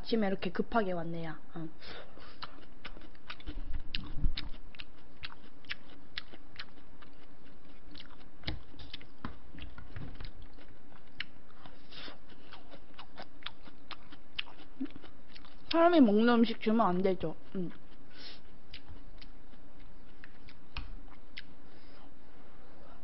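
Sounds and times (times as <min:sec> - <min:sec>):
chewing with wet mouth clicks: 0:02.2 - 0:15.8, 0:18.7 - 0:21.5.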